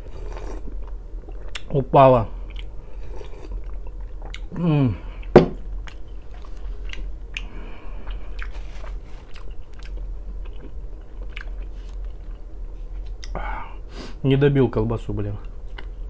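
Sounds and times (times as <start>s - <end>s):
person chewing food: 0.0s - 1.7s, 2.4s - 13.4s, 15.4s - 16.0s
sharp knock: 5.4s - 5.6s.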